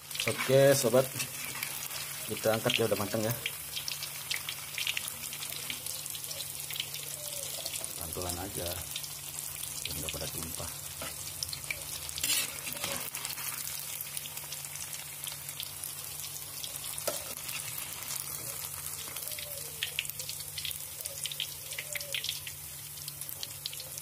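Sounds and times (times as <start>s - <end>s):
tofu sizzling in hot oil: 0.0s - 24.0s.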